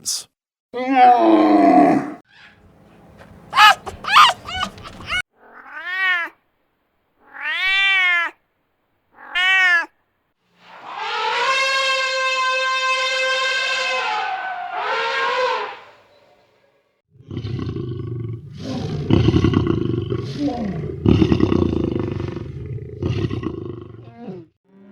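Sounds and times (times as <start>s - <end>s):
animal long steady call: 2.7s - 5.2s, 10.6s - 16.0s
cat meowing: 3.5s - 6.3s.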